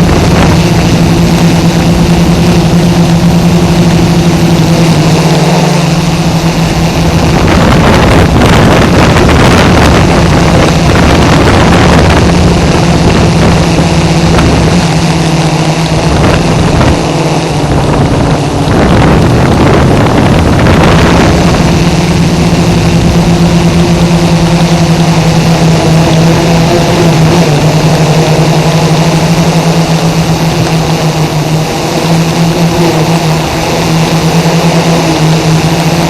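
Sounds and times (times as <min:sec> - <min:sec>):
drone propellers buzzing: 0:00.0 - 0:36.0
rushing air: 0:00.0 - 0:36.0.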